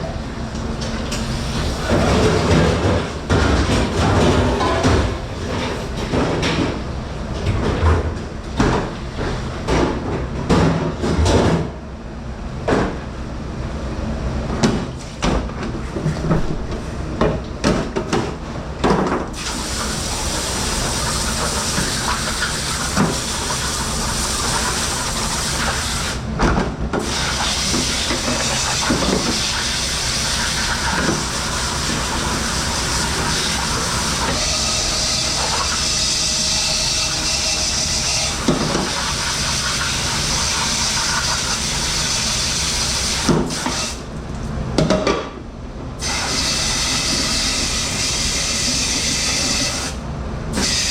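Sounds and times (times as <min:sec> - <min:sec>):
dishes and utensils clattering: 0:01.9 - 0:06.7.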